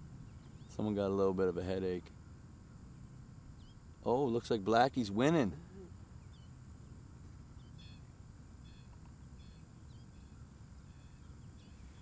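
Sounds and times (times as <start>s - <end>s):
small birds chirping: 0.2s - 1.2s, 2.6s - 4.2s, 5.4s - 12.0s.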